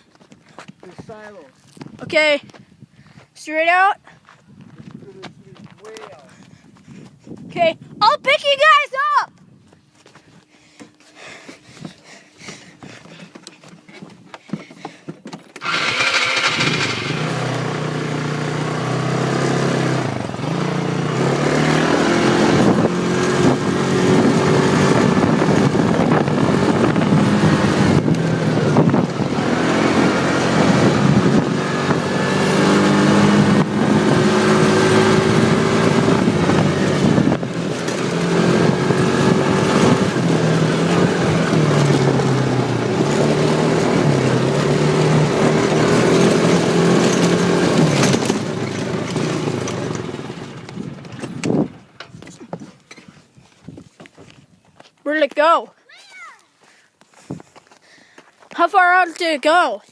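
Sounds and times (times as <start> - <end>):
atv engine revving: 15.5 - 53.0.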